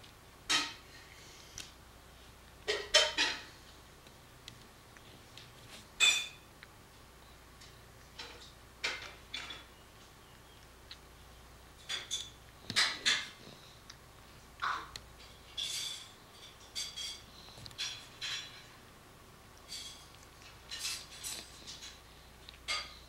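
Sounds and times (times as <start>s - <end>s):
dishes and utensils clinking: 2.7s - 3.5s, 6.0s - 6.4s, 15.6s - 18.7s.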